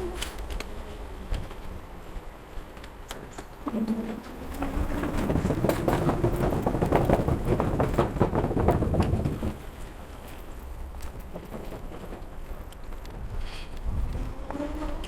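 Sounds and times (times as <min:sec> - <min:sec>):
wind and tyre rumble: 0:00.0 - 0:15.0
bike rattling and knocking: 0:04.3 - 0:15.0.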